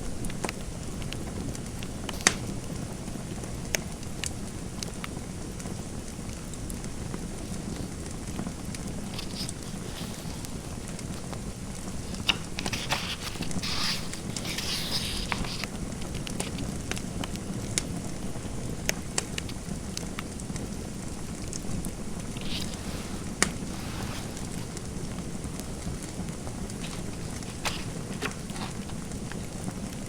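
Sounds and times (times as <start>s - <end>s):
low background noise: 0.0s - 30.0s
fire crackling: 19.1s - 30.0s.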